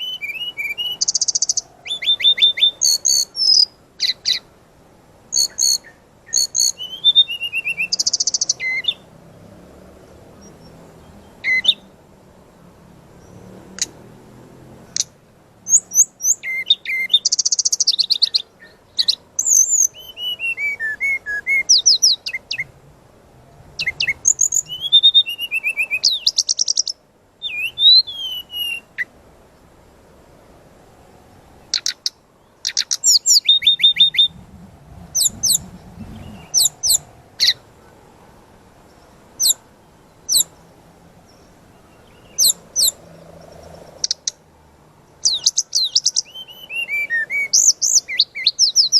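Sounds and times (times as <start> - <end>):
bird singing trills and whistles: 0.0 - 4.5, 5.3 - 9.1, 10.4 - 11.9, 15.7 - 22.7, 23.8 - 29.1, 31.7 - 34.4, 35.1 - 37.6, 39.4 - 39.6, 40.3 - 40.6, 41.3 - 43.0, 45.2 - 48.9
sharp bird calls: 0.0 - 4.6, 5.3 - 12.0, 14.7 - 22.8, 23.8 - 29.2, 31.6 - 44.4, 45.2 - 48.9.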